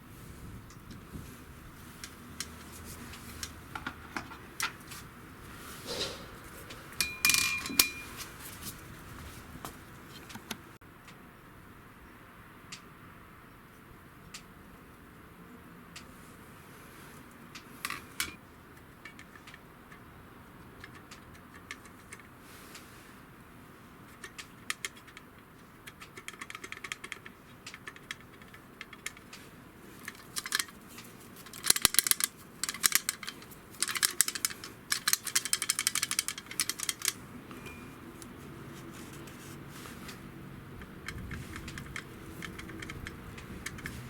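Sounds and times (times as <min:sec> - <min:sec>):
small metal parts clicking and rattling: 0:24.2 - 0:37.8.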